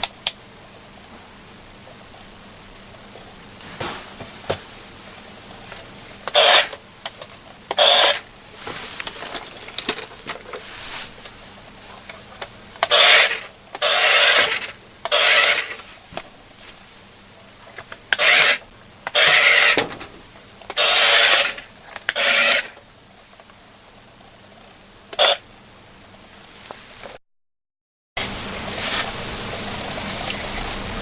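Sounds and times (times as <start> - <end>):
toy car electric motor whirring: 6.2 - 8.2, 12.8 - 15.9, 18.1 - 19.8, 20.7 - 22.8.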